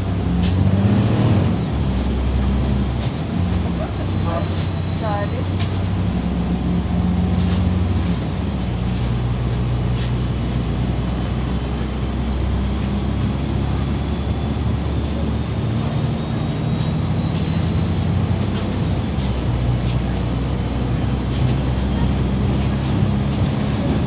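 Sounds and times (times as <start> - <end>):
bus body rattles: 0.0 - 24.0
bus diesel engine hum: 0.0 - 24.0.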